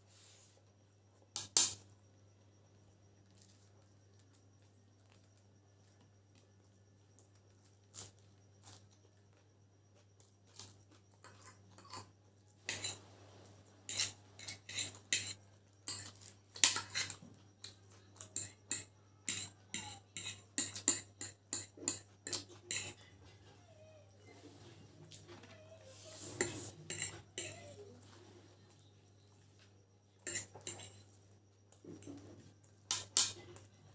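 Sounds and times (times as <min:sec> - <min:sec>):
steady low hum: 0:00.0 - 0:33.9
cutlery clinking against plate: 0:11.2 - 0:13.0, 0:13.9 - 0:17.2, 0:18.2 - 0:23.0, 0:26.3 - 0:27.8, 0:30.2 - 0:31.2.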